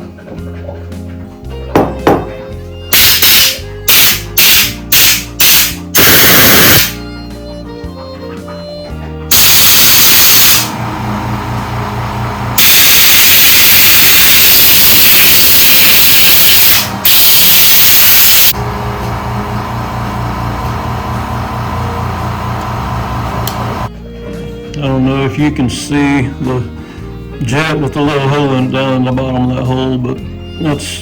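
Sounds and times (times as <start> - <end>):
background music: 0.0 - 6.0, 6.8 - 10.1, 23.9 - 31.0.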